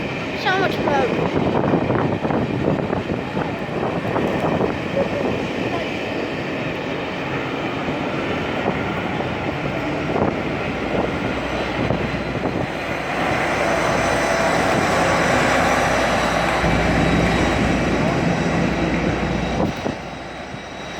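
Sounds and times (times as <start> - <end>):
train rumbling: 0.0 - 20.9.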